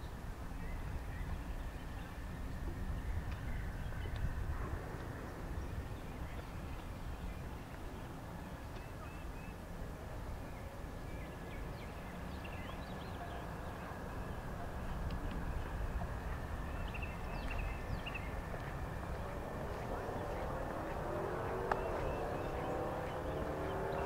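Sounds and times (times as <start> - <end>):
steady low rumble: 9.9 - 24.0
small birds chirping: 10.4 - 24.0.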